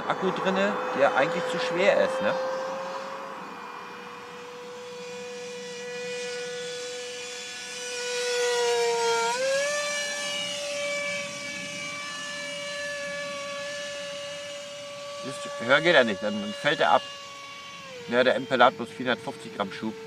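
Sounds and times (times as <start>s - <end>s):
electric ducted fan whine: 0.0s - 20.0s.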